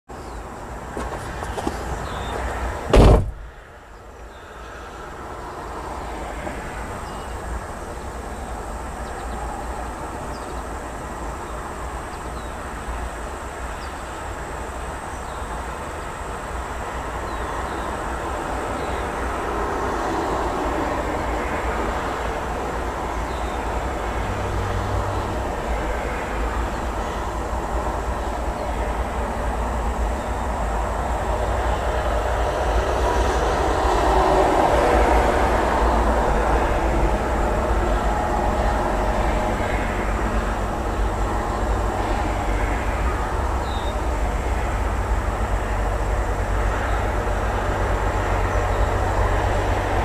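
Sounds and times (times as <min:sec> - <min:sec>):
distant train rumble: 0:00.1 - 0:50.0
sharp thump: 0:02.9 - 0:03.5.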